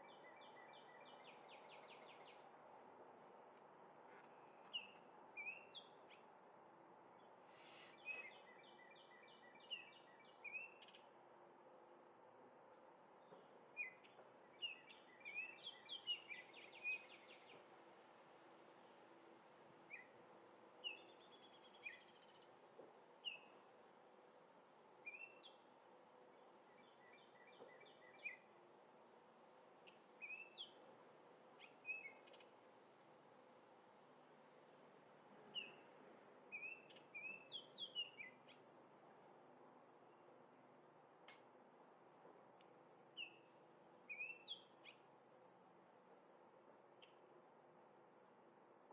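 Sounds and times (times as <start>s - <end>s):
faint background noise: 0.0s - 48.9s
brief hiss: 7.4s - 8.4s.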